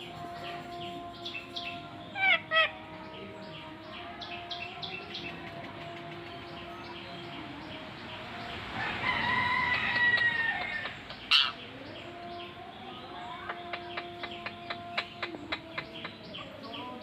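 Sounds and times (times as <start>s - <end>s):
bird crowing call: 8.8s - 11.6s.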